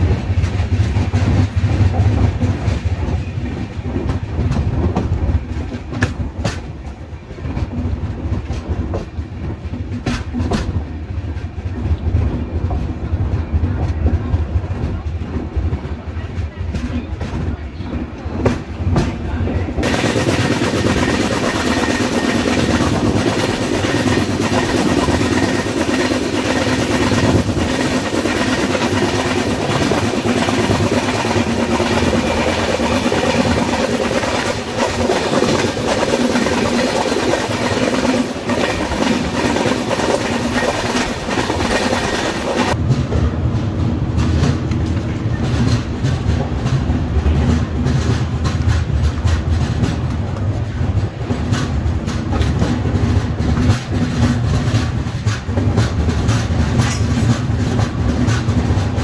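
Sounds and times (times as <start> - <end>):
low dull train rumble: 0.0 - 59.0
train rushing at speed: 0.0 - 59.0
wheels clattering over rail joints: 18.4 - 59.0.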